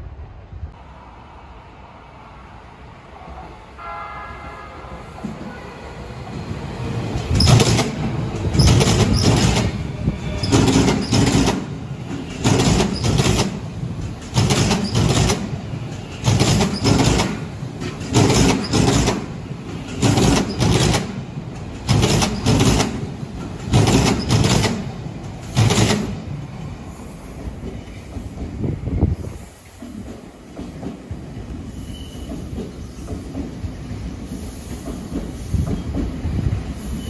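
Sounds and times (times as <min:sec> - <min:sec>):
train running rumble: 0:03.2 - 0:37.0
train wheels clattering over rail joints: 0:07.1 - 0:26.3, 0:34.6 - 0:36.4.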